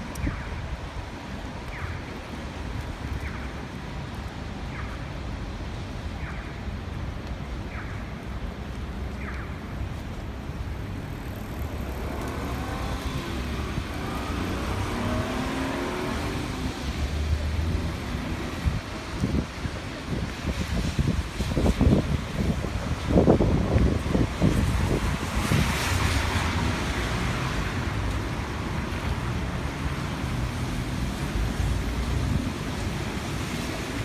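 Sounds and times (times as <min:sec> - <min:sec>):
wind rumble on microphone: 0:00.0 - 0:34.0
car passing by: 0:11.2 - 0:19.5, 0:24.0 - 0:34.0.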